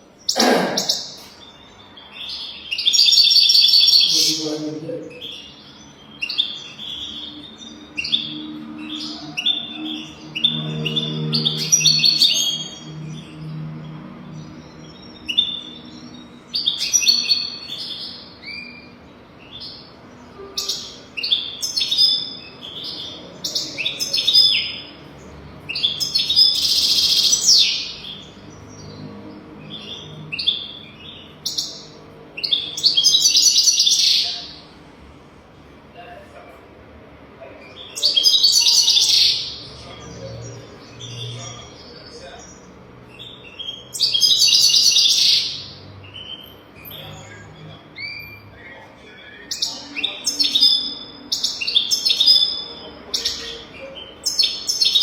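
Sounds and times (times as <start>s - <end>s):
harsh buzzy bird phrase: 0.3s - 1.4s, 4.0s - 5.4s.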